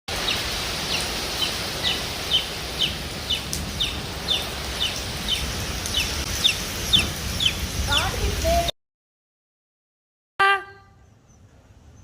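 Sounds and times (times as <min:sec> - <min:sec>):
steady rain hissing: 0:00.1 - 0:08.7
bird chirping: 0:00.2 - 0:08.1, 0:10.4 - 0:12.0.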